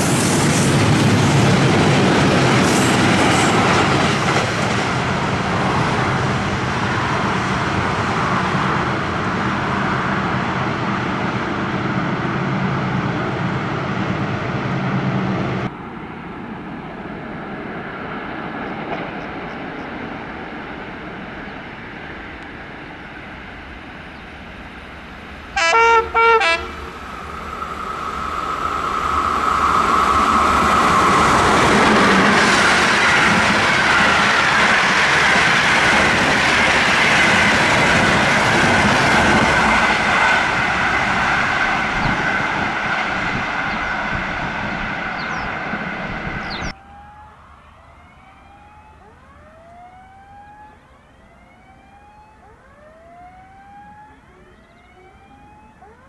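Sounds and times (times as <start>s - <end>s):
passenger train rumble: 0.0s - 50.2s
electric locomotive horn blasts: 25.6s - 27.0s.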